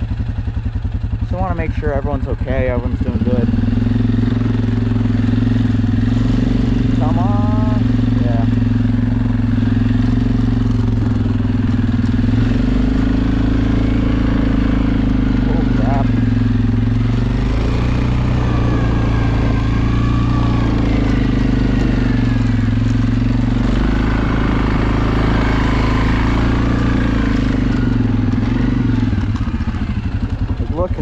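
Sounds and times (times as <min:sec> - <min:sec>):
atv engine running: 0:00.0 - 0:31.0.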